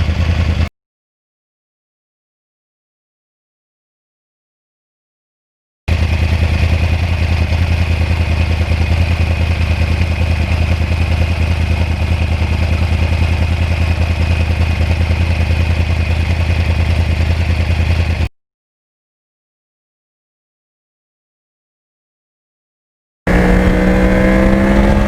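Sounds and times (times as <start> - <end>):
motorcycle engine running steadily: 0.0 - 0.7, 5.9 - 18.3, 23.3 - 25.0.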